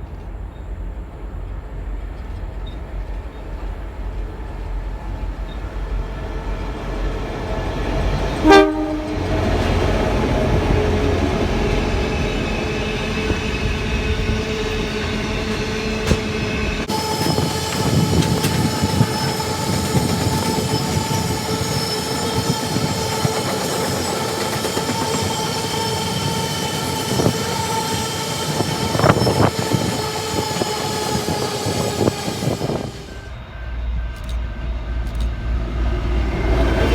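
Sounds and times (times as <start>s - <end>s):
train rail running noise: 0.0s - 36.9s
train horn blast: 8.4s - 9.8s.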